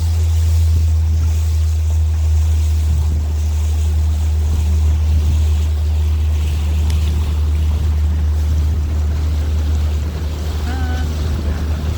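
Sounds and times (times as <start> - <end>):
boat engine droning: 0.0 - 11.9
water noise: 0.0 - 11.9
wind: 0.0 - 11.9.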